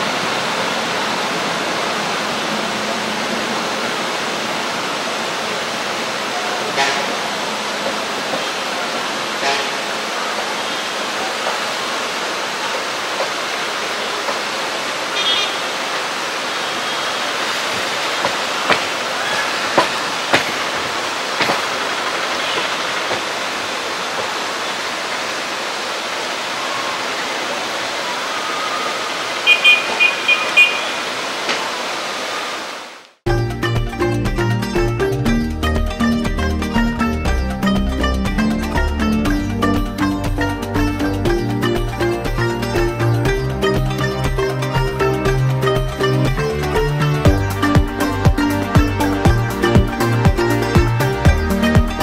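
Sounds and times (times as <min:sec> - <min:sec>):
train rushing at speed: 0:00.0 - 0:32.7.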